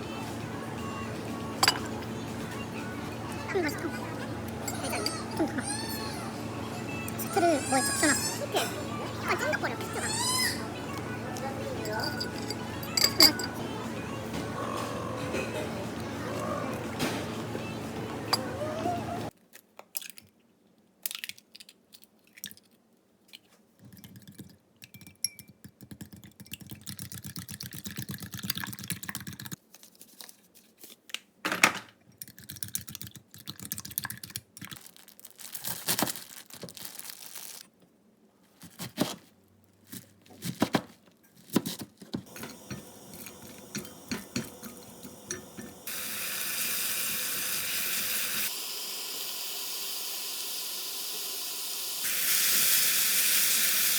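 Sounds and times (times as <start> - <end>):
kitchen clicks and knocks: 1.6 - 2.0, 11.8 - 13.6, 40.4 - 45.8
steady hiss: 42.3 - 53.9.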